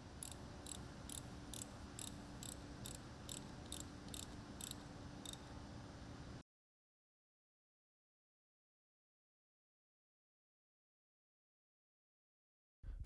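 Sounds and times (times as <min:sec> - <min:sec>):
ratchet wrench clicking: 0:00.2 - 0:05.4.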